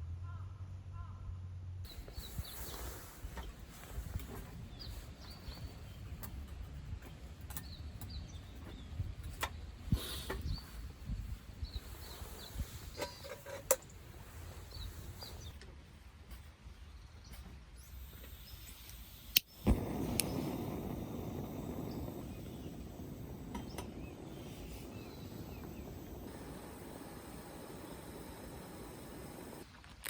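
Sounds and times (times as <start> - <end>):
small birds chirping: 1.9 - 30.0
low outdoor rumble: 18.0 - 30.0.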